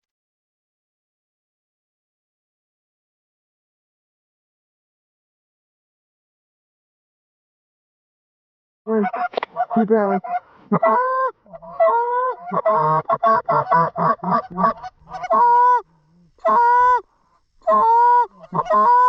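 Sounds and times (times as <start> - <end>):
goose honking: 8.9 - 17.0, 17.6 - 19.0
goose clucking: 8.9 - 19.0.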